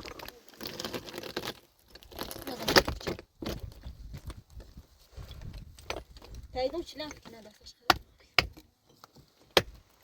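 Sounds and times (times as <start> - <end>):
rustling and crinkling: 0.0 - 7.8.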